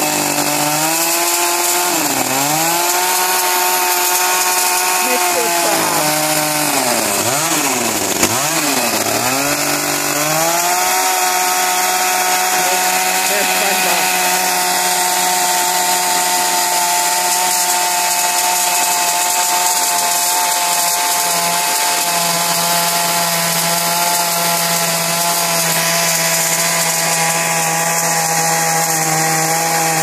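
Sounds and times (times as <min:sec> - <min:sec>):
chainsaw running: 0:00.0 - 0:30.0.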